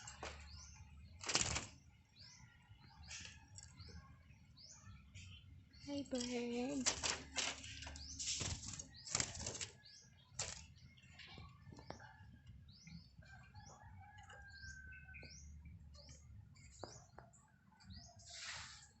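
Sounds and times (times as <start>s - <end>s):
lovebirds chirping: 0.0s - 19.0s.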